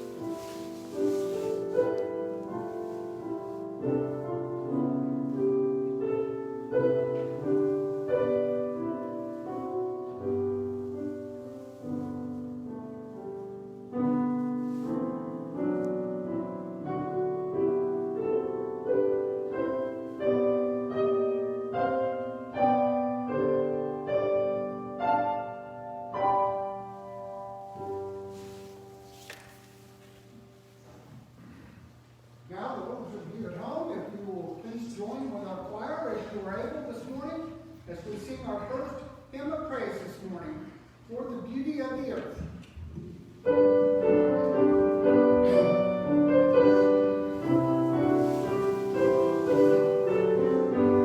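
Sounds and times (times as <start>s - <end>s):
slow solo piano piece: 0.0s - 31.8s, 42.4s - 51.0s.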